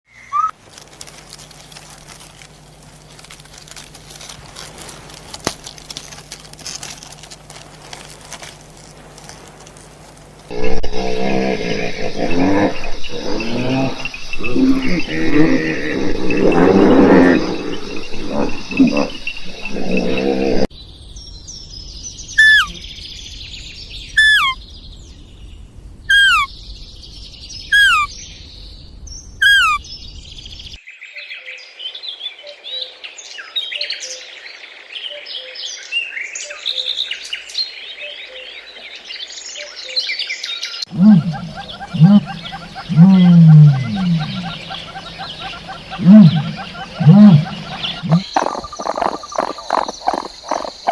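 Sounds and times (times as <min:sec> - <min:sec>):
loud animal call: 0:00.3 - 0:00.5, 0:10.5 - 0:20.7, 0:22.4 - 0:22.8, 0:24.2 - 0:24.6, 0:26.1 - 0:26.5, 0:27.7 - 0:28.1, 0:29.4 - 0:29.8, 0:40.9 - 0:50.9
many birds chirping: 0:10.6 - 0:50.9
low calls from large animal: 0:22.4 - 0:22.7, 0:24.2 - 0:24.6, 0:26.1 - 0:26.5, 0:27.8 - 0:28.1, 0:29.4 - 0:29.8, 0:40.9 - 0:49.1
bird call falling in pitch: 0:22.4 - 0:22.8, 0:24.2 - 0:24.6, 0:26.1 - 0:26.5, 0:27.7 - 0:28.1, 0:29.4 - 0:29.8.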